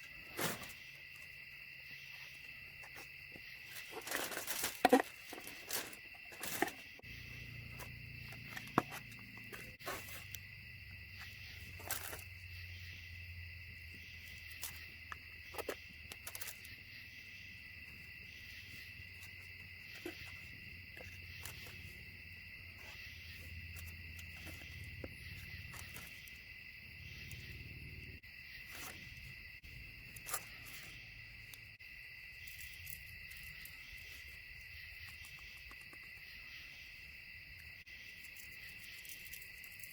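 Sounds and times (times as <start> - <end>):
insect chorus chirring: 0.0 - 39.9.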